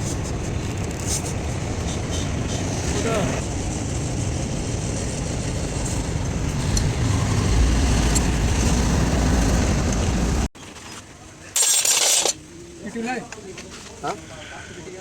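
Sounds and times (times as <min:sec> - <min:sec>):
truck engine and road rumble: 0:00.0 - 0:12.5.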